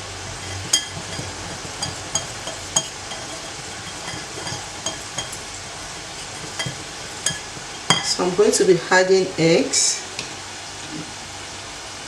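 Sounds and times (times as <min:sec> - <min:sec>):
utensil scraping bowl: 0:00.0 - 0:08.4
utensil clinking against bowl: 0:00.3 - 0:08.3.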